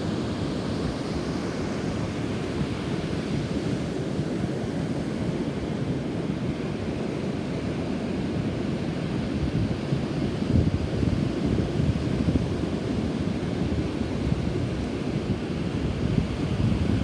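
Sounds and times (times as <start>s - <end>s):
wind buffeting microphone: 10.5s - 17.0s.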